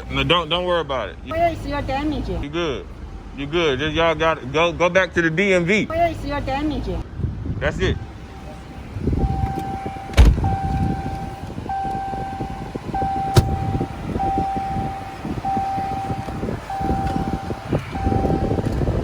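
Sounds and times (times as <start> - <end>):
vehicle and road noise: 0.0 - 19.0
electronic warning beep: 9.2 - 19.0.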